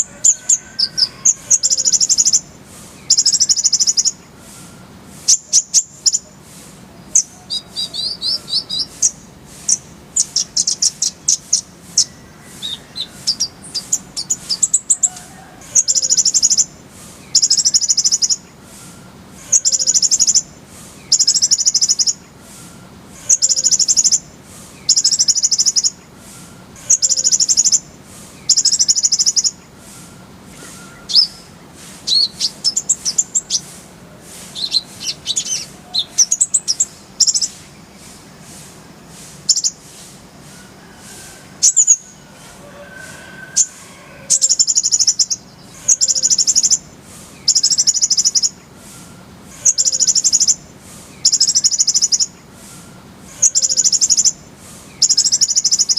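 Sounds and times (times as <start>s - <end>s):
sunbird trilling: 0.0s - 33.8s, 34.5s - 38.4s, 39.4s - 39.8s, 40.6s - 55.9s
bird chirps and whistles: 0.3s - 6.4s, 7.1s - 15.2s, 15.8s - 16.7s, 17.3s - 20.5s, 21.1s - 22.2s, 24.8s - 27.8s, 28.4s - 31.5s, 32.1s - 33.7s, 34.6s - 37.6s, 44.4s - 46.8s, 47.4s - 50.6s, 51.2s - 52.3s, 53.4s - 54.4s, 55.0s - 55.9s.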